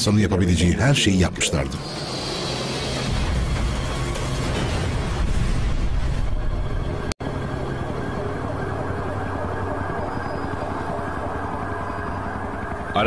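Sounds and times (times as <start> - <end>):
emergency vehicle sirens: 5.8 - 13.0.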